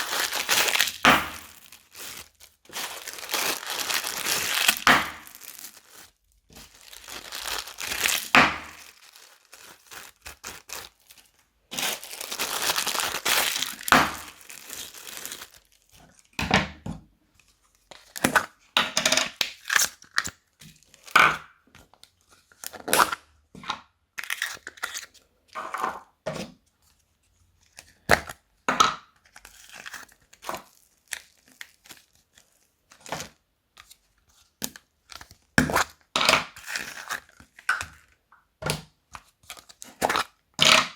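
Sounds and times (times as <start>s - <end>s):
plastic bags crinkling: 0.0s - 16.3s, 29.4s - 33.2s.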